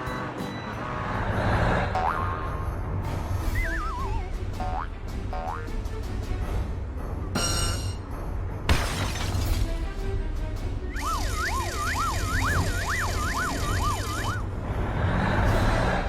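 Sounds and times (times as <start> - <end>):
cartoon background music: 0.0 - 16.0
siren wailing: 10.9 - 14.5.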